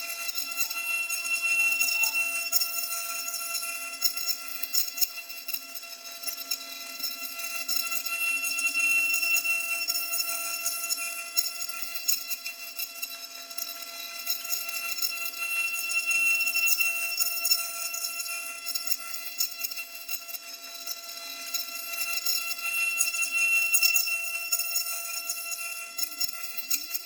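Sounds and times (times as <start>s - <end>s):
milling spindle whining: 0.0s - 3.3s.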